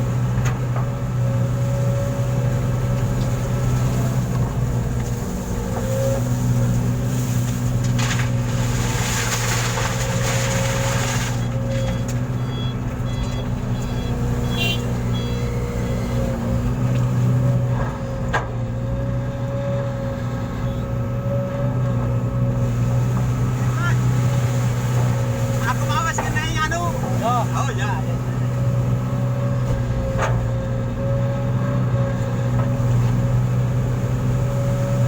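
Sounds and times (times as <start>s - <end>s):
truck engine idling: 9.6s - 34.6s.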